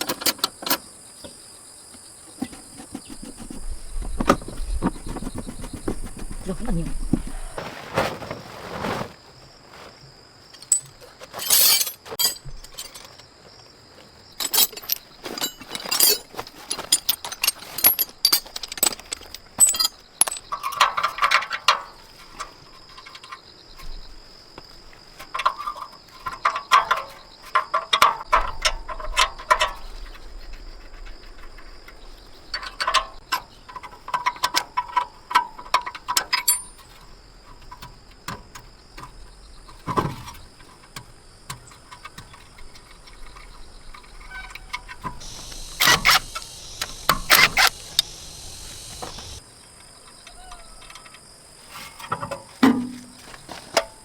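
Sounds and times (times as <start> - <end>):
hand tools clinking on metal: 10.6 - 13.2, 14.4 - 23.4, 32.5 - 37.1, 41.6 - 49.4.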